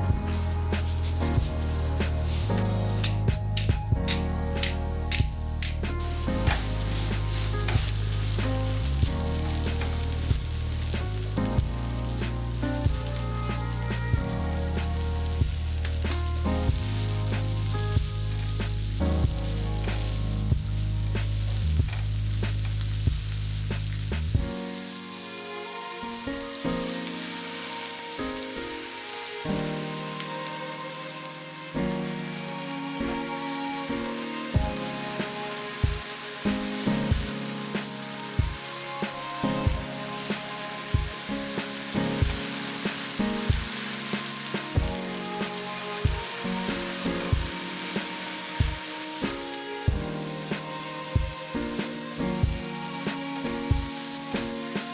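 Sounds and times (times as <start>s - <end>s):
soft instrumental music: 0.0s - 54.9s
food sizzling in a frying pan: 0.7s - 3.2s, 4.1s - 54.9s
utensil clicks: 3.0s - 6.0s.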